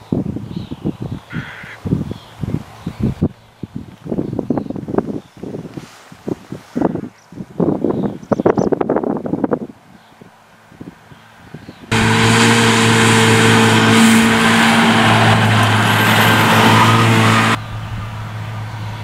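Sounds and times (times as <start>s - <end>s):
disc mower whirring: 11.9s - 17.6s
tractor engine drone: 11.9s - 19.0s.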